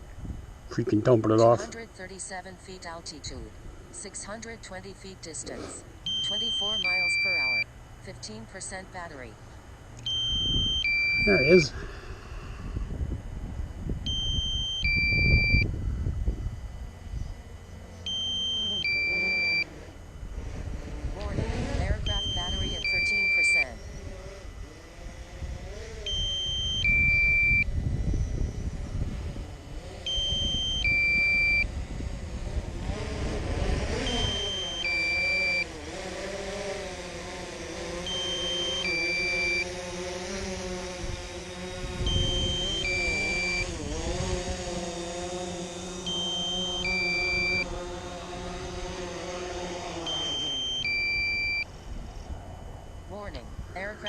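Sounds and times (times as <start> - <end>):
wind rumbling on microphone: 0.0 - 0.9, 10.1 - 18.2, 19.7 - 34.6, 40.2 - 45.9, 50.3 - 54.0
drone propellers whining: 0.0 - 54.0
two-note alarm beeping: 6.0 - 8.4, 10.0 - 11.7, 14.0 - 15.7, 17.6 - 19.8, 21.9 - 24.1, 26.0 - 28.9, 30.0 - 31.8, 34.0 - 35.8, 38.0 - 39.9, 41.5 - 43.8, 45.7 - 48.8, 49.5 - 54.0.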